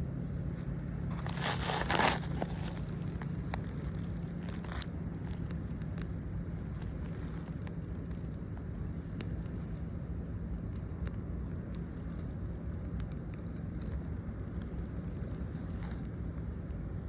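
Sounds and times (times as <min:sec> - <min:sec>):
campfire crackling and popping: 0:00.4 - 0:17.0.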